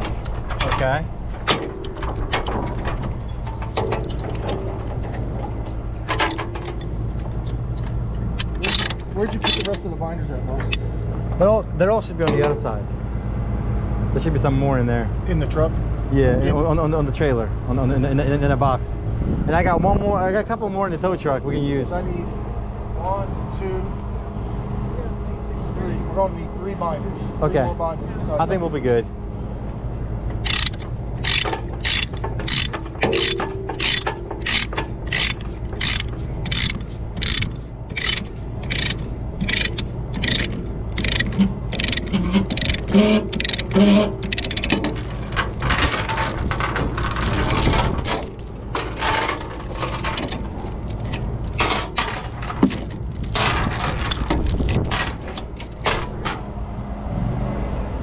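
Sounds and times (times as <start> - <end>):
ratchet binder clicking: 8.4 - 9.8, 30.4 - 45.0.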